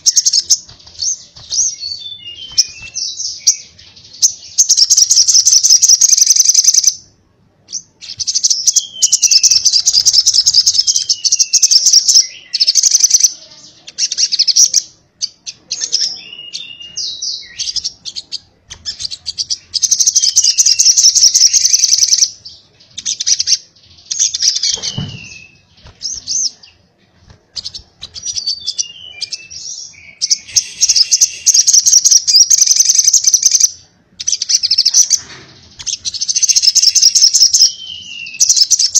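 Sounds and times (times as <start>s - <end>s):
bird high-pitched chattering song: 0.0s - 7.1s, 7.7s - 26.9s, 27.5s - 38.9s
low thump: 24.8s - 25.4s.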